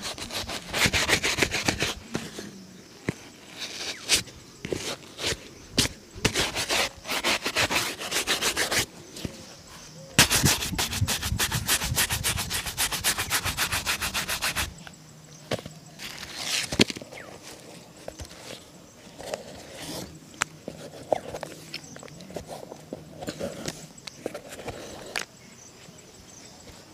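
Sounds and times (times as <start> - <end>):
brush on shoe: 0.0 - 2.4, 3.5 - 8.9, 10.2 - 14.8
light taps and scrapes: 14.8 - 25.3.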